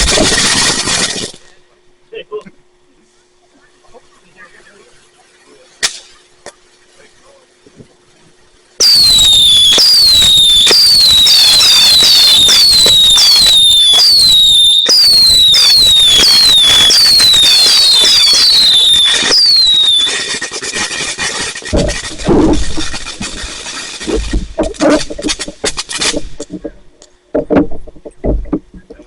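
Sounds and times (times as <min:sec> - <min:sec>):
whistling fireworks: 0:00.0 - 0:01.4, 0:08.8 - 0:26.4
fireworks crackling and banging: 0:00.0 - 0:01.6, 0:05.0 - 0:29.0.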